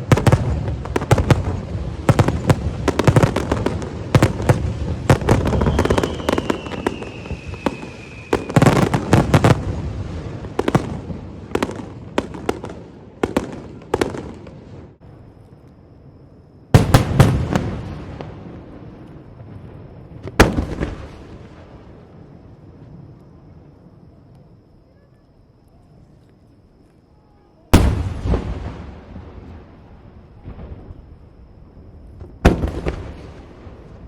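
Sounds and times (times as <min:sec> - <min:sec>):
fireworks bursts and crackling bangs: 0:00.0 - 0:15.7, 0:16.7 - 0:26.2, 0:26.9 - 0:34.0
firework high whistle: 0:01.3 - 0:09.7.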